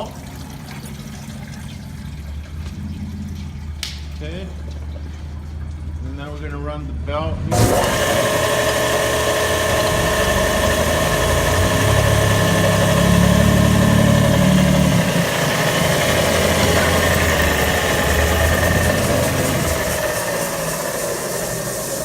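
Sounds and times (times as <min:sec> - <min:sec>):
belt sander hum and whine: 0:07.5 - 0:22.0
water spray hissing: 0:15.5 - 0:22.0.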